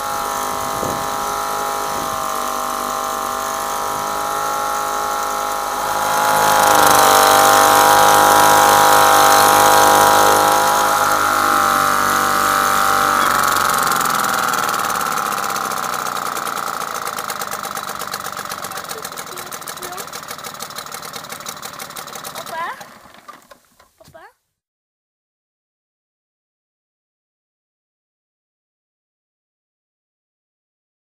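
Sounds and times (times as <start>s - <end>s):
two-stroke outboard motor running: 0.0s - 24.3s.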